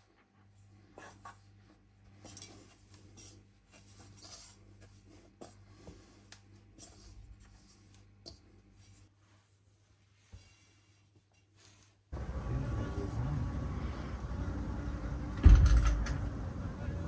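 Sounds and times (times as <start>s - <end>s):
steady low hum: 12.1s - 17.0s.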